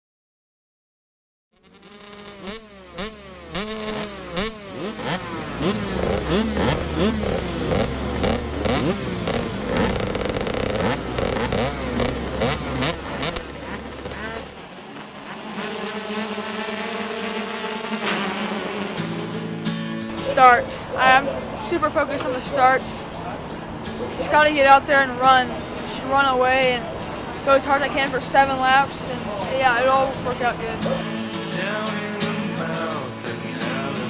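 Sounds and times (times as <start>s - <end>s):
motocross bikes revving: 1.6s - 34.0s
deep steady rumble: 2.6s - 31.1s.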